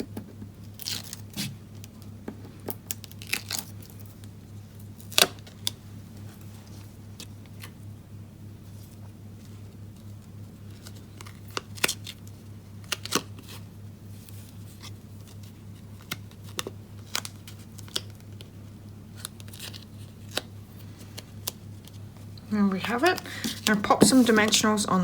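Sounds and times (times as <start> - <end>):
steady low hum: 0.0 - 25.0
paper handling taps and rustles: 14.2 - 24.9.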